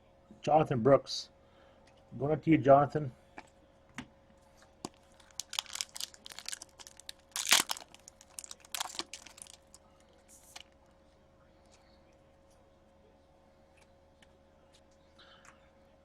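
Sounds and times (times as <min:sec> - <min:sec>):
cards and plastic rustling: 0:04.8 - 0:10.8.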